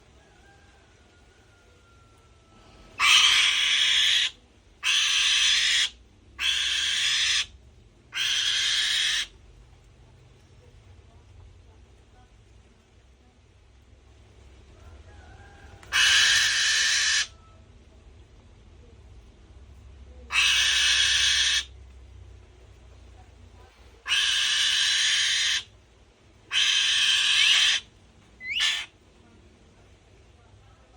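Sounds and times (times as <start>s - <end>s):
bird hissing screech: 3.0s - 4.3s, 4.9s - 7.5s, 16.0s - 17.3s, 24.1s - 25.7s, 26.5s - 27.9s.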